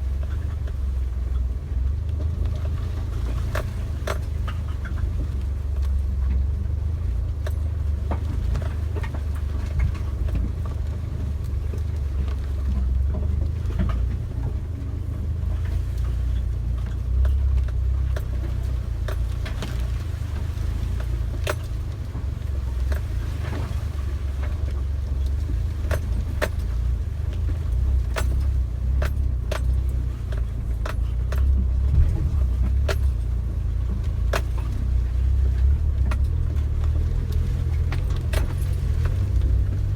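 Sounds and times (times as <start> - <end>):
engine and road rumble: 0.0 - 39.9
sharp clicks and rattles: 15.4 - 39.9.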